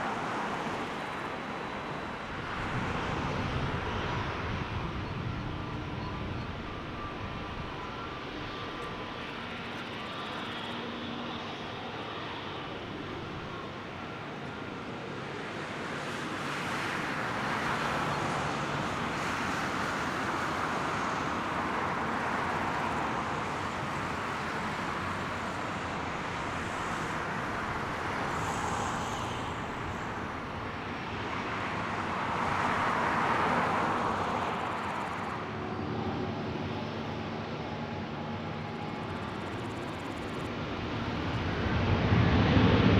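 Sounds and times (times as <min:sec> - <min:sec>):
jet engines roaring on takeoff: 0:00.0 - 0:42.9.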